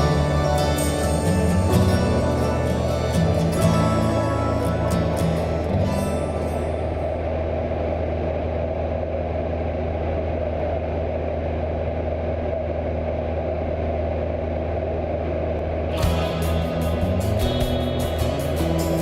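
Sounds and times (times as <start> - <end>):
light aircraft engine droning: 0.0 - 19.0.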